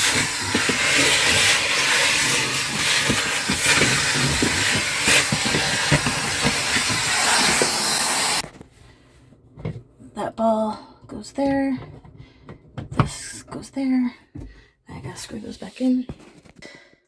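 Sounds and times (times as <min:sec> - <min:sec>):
vacuum cleaner running: 0:00.0 - 0:08.4.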